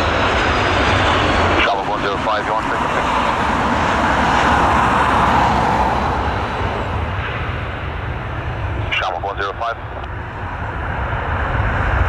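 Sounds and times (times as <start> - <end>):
jet engine passing: 0.0 - 12.0
low rumble: 9.7 - 12.0.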